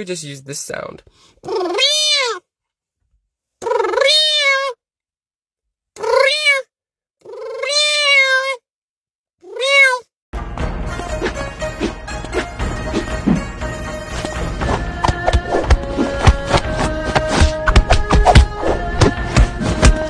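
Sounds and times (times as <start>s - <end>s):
cat meowing: 1.4s - 2.4s, 3.6s - 4.8s, 6.0s - 8.6s, 9.4s - 10.1s
music: 10.4s - 20.0s.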